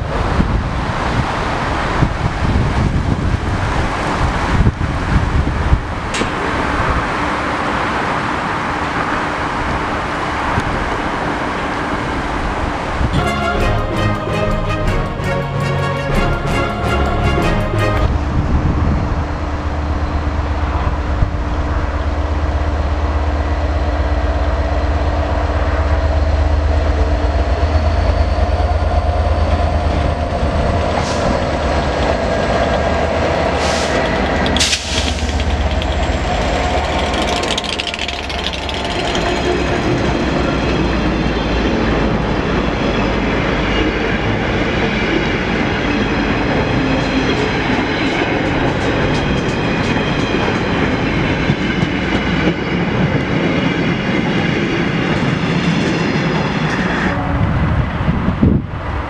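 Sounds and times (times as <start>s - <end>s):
diesel locomotive engine rumble: 0.0s - 59.0s
wagons clickety-clack rolling past: 33.6s - 41.2s.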